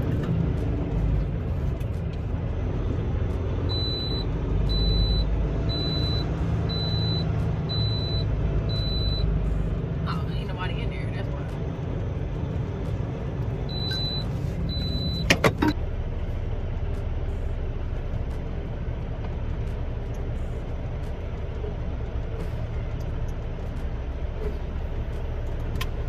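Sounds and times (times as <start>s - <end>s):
diesel truck engine rumbling: 0.0s - 26.0s
short high beeps: 13.7s - 15.3s.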